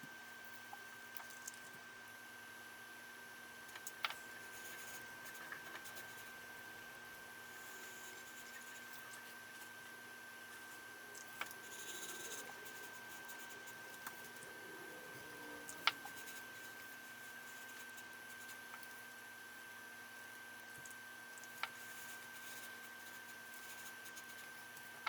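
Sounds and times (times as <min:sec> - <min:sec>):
faint high-pitched whine: 0:00.0 - 0:25.0.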